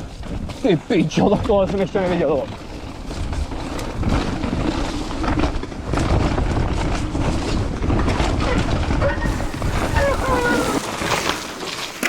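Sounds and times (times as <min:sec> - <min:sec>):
wind buffeting microphone: 0:00.0 - 0:11.2
steady rumble: 0:09.3 - 0:11.0.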